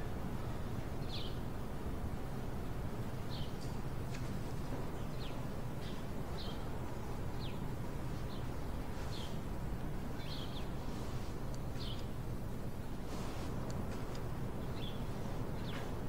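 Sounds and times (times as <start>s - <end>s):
low background hum: 0.0s - 16.0s
birds chirping: 4.8s - 16.0s.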